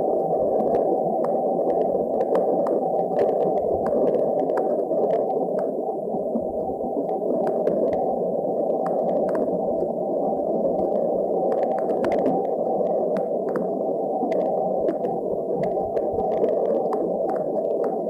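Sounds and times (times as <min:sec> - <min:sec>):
faint clicks: 0:00.5 - 0:05.8, 0:08.7 - 0:10.0, 0:10.7 - 0:18.0.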